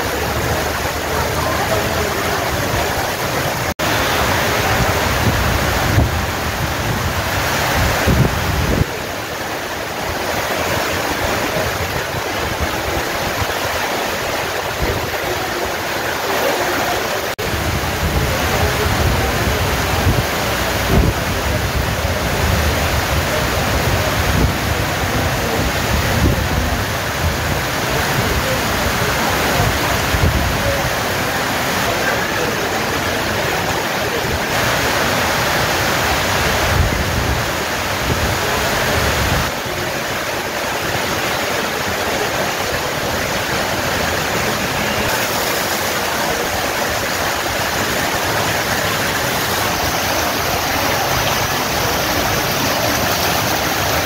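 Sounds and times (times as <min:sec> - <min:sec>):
heavy rain hissing: 0:00.0 - 0:54.0.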